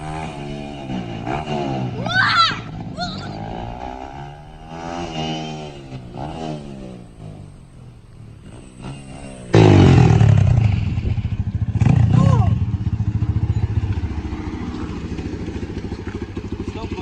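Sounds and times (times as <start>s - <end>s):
dirt bike engine revving: 0.0s - 17.0s
loud close engine pulsing: 0.0s - 17.0s.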